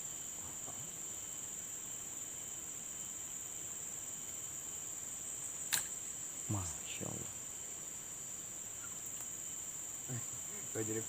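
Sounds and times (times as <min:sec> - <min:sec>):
insects chirring: 0:00.0 - 0:11.0
sharp click: 0:05.7 - 0:06.0.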